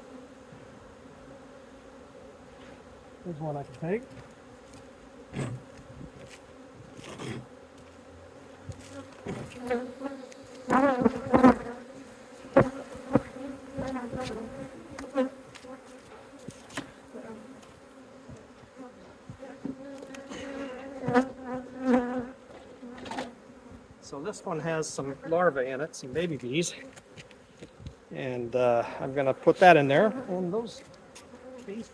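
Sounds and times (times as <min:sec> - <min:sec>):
bees buzzing: 0:00.0 - 0:25.7, 0:26.5 - 0:31.9.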